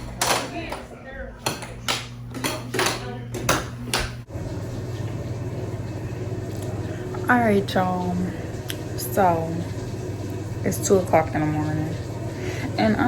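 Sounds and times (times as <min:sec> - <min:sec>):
faint voices: 0:00.0 - 0:03.9
low room hum: 0:00.0 - 0:13.0.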